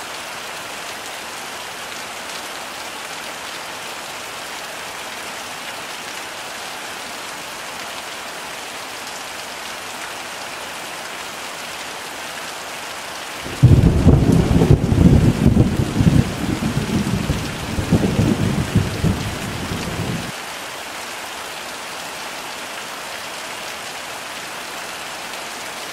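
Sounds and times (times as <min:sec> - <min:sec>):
heavy rain falling: 0:00.0 - 0:25.9
thunder clap and rumble: 0:13.5 - 0:20.3.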